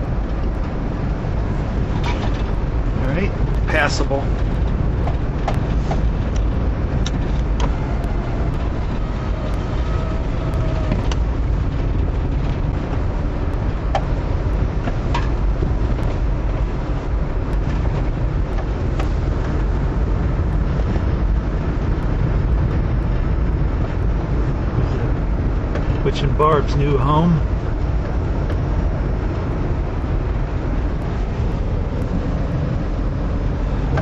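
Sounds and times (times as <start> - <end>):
engine and tyres rumbling: 0.0 - 34.0.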